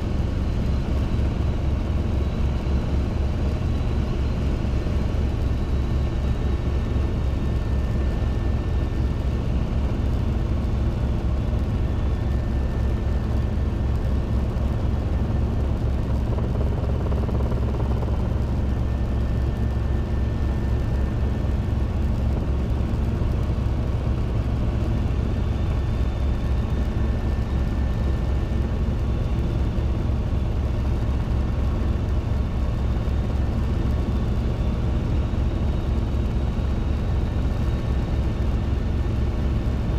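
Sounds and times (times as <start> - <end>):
helicopter rotor beat: 0.0 - 39.9
helicopter piston engine: 14.7 - 19.0.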